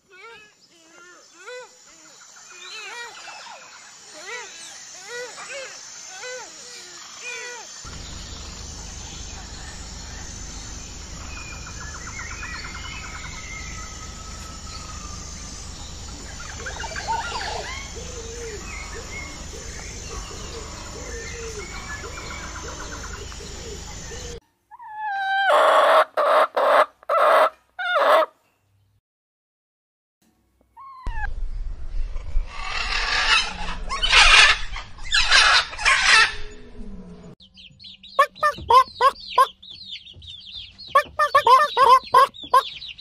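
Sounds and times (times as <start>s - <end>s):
small birds calling: 0.0s - 27.4s, 37.3s - 43.0s
farmyard background noise: 0.0s - 28.6s, 32.6s - 43.0s
chickens calling: 7.8s - 28.3s, 32.7s - 36.6s, 37.5s - 43.0s
loud harsh fowl calls: 38.2s - 39.5s, 41.0s - 42.8s.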